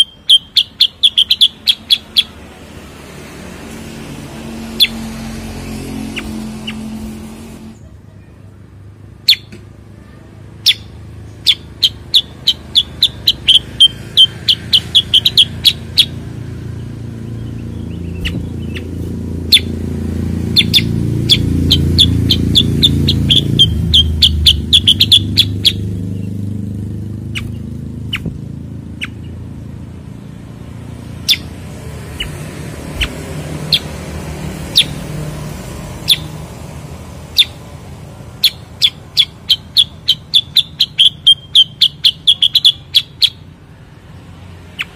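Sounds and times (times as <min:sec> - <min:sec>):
bird singing sharp high notes: 0:00.0 - 0:02.4, 0:10.6 - 0:19.8, 0:20.4 - 0:26.4, 0:38.4 - 0:43.4.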